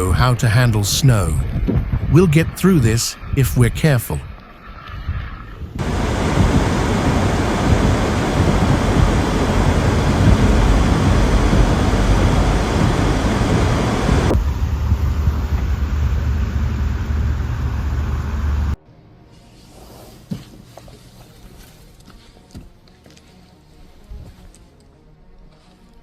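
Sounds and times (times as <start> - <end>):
wind buffeting microphone: 5.0 - 16.4
vehicle rumble: 5.8 - 18.8.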